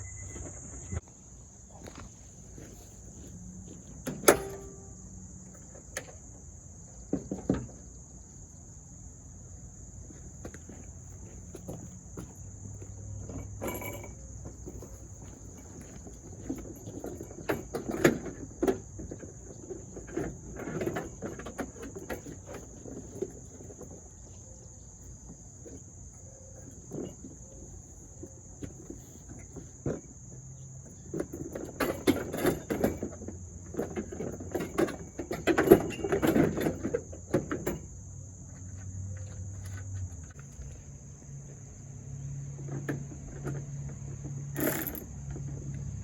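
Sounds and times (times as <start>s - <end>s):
crickets chirping: 0.0s - 46.0s
knocks and rattles from car work: 1.9s - 5.0s, 7.0s - 8.0s, 10.1s - 24.1s, 25.0s - 38.0s.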